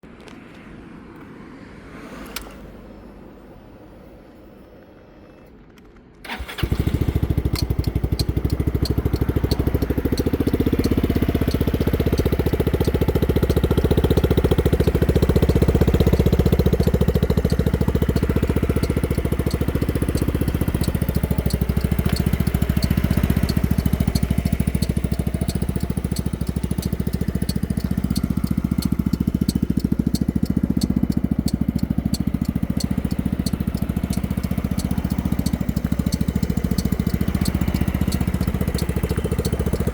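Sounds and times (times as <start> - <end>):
scooter engine starting and idling: 5.2 - 39.9.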